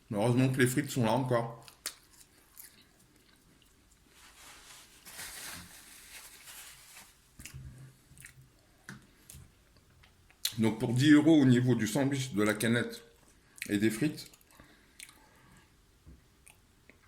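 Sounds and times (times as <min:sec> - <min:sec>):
person chewing french fries: 0:01.6 - 0:04.1, 0:07.4 - 0:08.6, 0:13.2 - 0:15.3.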